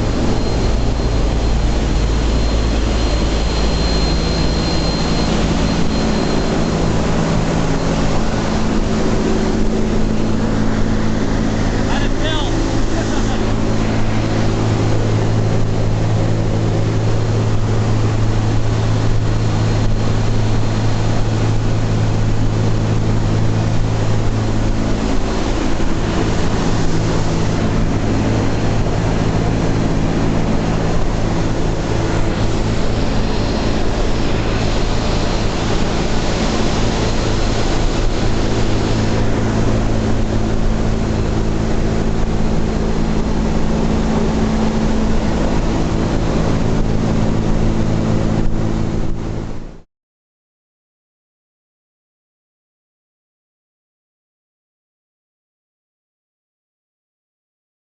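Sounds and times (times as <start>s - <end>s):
propeller plane engines droning: 0.0s - 49.8s.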